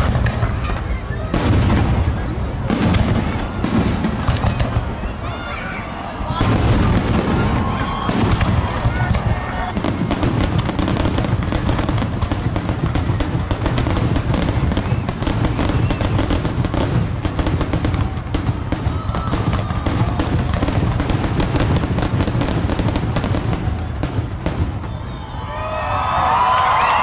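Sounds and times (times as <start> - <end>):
deep fireworks booms: 0.0 - 27.0
fireworks bangs and crackles: 0.0 - 27.0.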